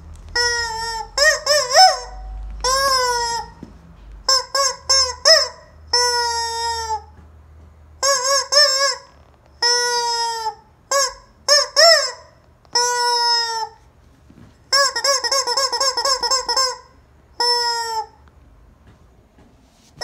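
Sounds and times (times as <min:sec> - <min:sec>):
squeaky rubber chicken toy: 0:00.3 - 0:03.6, 0:04.2 - 0:07.2, 0:08.0 - 0:13.9, 0:14.7 - 0:18.2.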